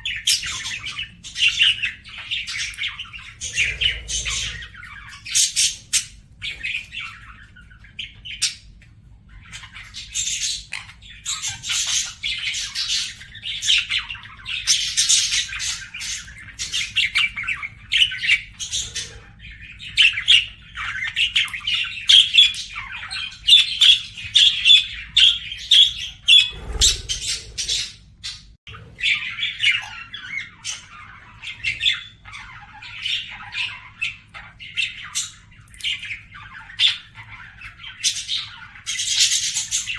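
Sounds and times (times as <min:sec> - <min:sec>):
budgerigar warbling and chattering: 0:00.1 - 0:07.1, 0:26.0 - 0:28.0.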